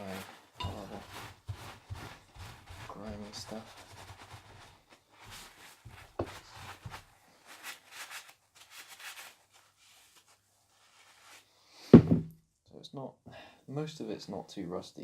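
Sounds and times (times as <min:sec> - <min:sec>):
cloth wiping metal: 0:00.0 - 0:11.4.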